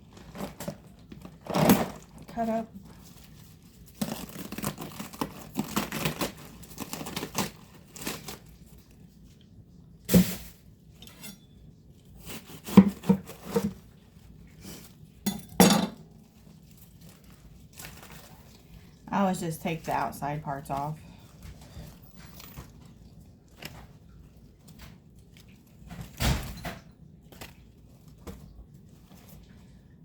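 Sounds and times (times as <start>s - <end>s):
lettuce crinkling and tearing: 0.0s - 9.5s, 16.1s - 19.0s, 19.8s - 26.4s, 27.0s - 29.8s
kitchenware knocks and clinks: 15.3s - 16.0s.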